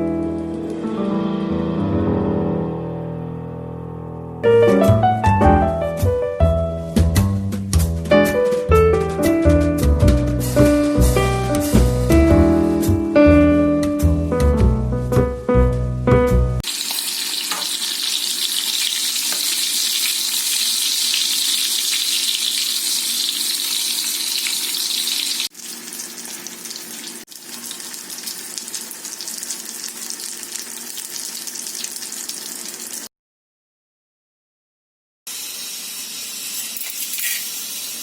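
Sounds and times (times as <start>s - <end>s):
food sizzling in hot oil: 16.6s - 33.1s, 35.3s - 38.0s.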